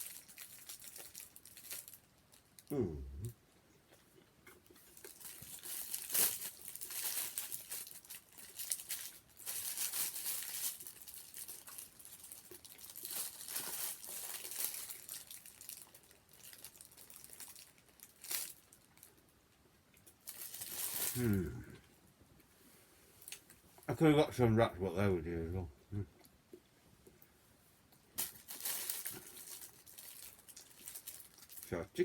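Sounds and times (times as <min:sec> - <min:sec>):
packaging crinkling and rustling: 0:00.0 - 0:02.7, 0:04.5 - 0:19.2, 0:20.0 - 0:21.5, 0:28.2 - 0:32.0.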